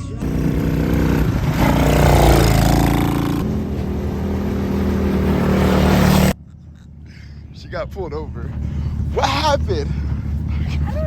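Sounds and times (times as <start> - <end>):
small vehicle engine revving: 0.2 - 6.4.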